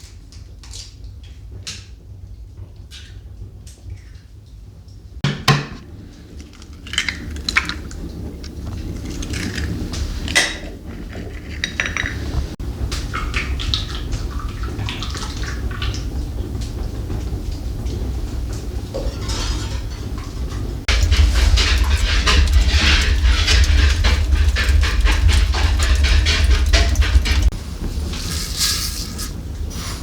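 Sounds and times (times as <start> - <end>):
kitchenware clattering: 5.2 - 12.6, 19.0 - 30.0
steady low rumble: 19.8 - 30.0.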